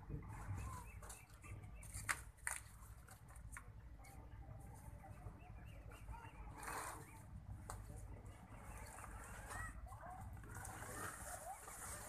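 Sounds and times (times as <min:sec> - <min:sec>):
faint bird chirps: 0:00.3 - 0:02.1, 0:05.0 - 0:07.3.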